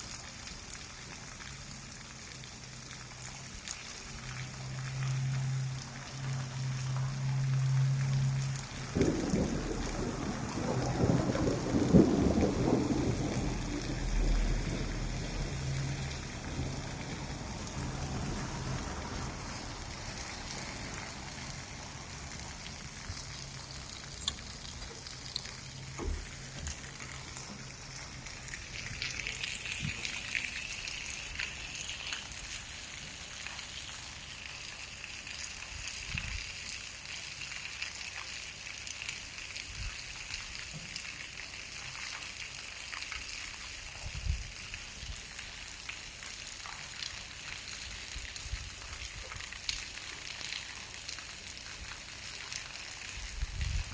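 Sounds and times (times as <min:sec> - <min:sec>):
steady rain: 0:00.0 - 0:53.9
thunder rumble: 0:04.8 - 0:31.9.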